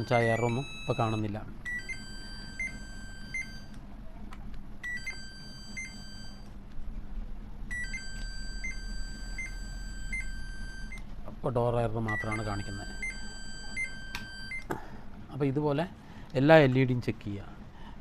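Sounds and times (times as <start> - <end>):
steady high tone: 0.0 - 3.8
washing machine buzzer beeping: 0.0 - 3.8, 4.8 - 6.4, 7.7 - 11.0, 12.0 - 14.7.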